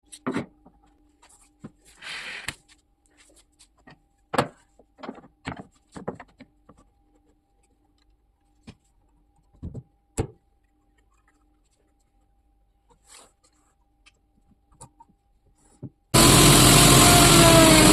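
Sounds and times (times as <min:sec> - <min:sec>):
faint steady hum: 0:00.0 - 0:17.4
knocks of objects being handled: 0:03.7 - 0:07.0, 0:08.6 - 0:10.4.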